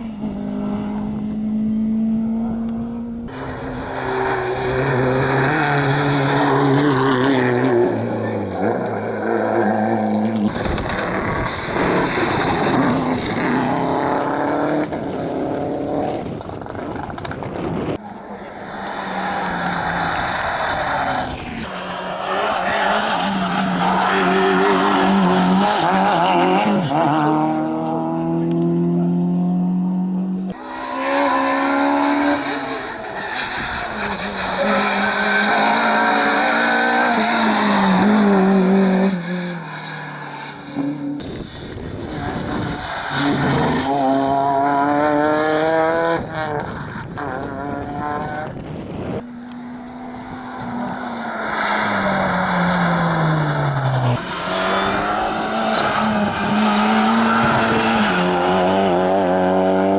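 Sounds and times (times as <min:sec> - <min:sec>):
rally car engines revving: 0:00.0 - 0:59.9
tire squeal: 0:03.3 - 0:15.2, 0:18.0 - 0:27.4, 0:30.4 - 0:47.8, 0:49.2 - 0:59.9.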